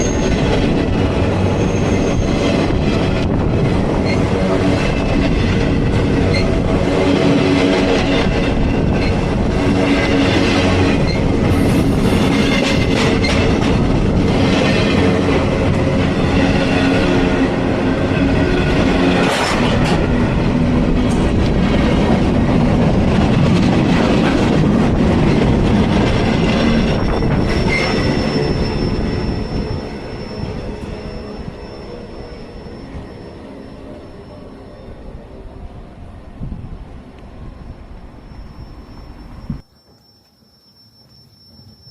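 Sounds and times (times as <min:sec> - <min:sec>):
wheel squeal: 0:01.4 - 0:02.6, 0:26.4 - 0:35.1, 0:38.2 - 0:41.9.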